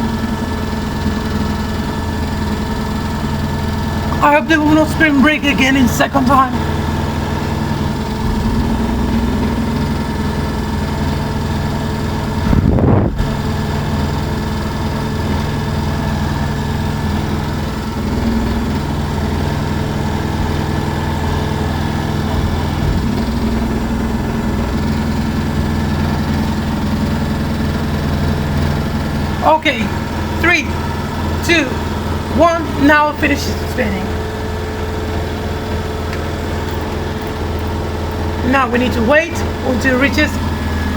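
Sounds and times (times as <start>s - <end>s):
washing machine spinning: 0.0s - 40.9s.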